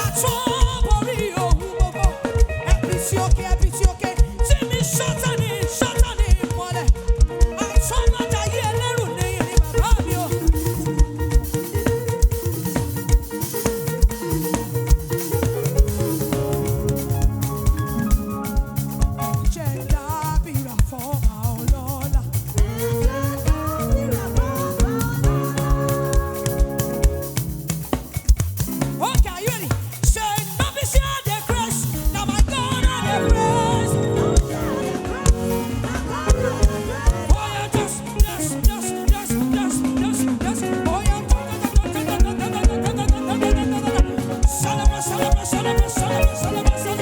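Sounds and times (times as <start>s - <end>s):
drum beat: 0.0s - 47.0s
gospel band playing: 0.0s - 47.0s
wavering lead melody: 9.0s - 20.8s, 21.9s - 29.2s, 31.9s - 47.0s.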